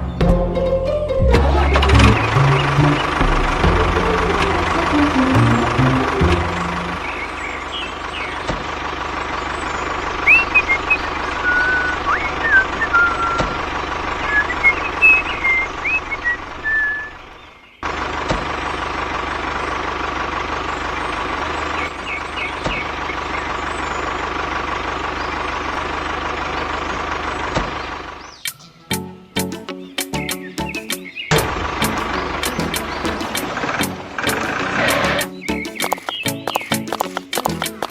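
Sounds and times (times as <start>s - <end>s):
short high chirps: 10.3s - 13.6s, 14.2s - 17.1s.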